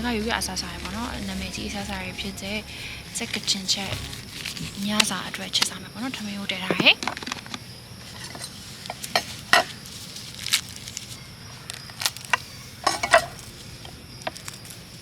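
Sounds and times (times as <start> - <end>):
low steady background noise: 0.0 - 15.0
utensils clinking on metal pots: 12.8 - 13.4.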